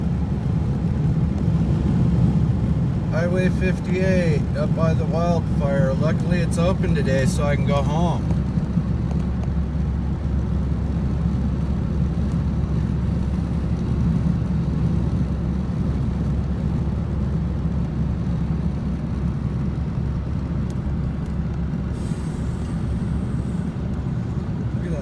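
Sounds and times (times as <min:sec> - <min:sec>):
car road and engine rumble: 0:00.0 - 0:25.0.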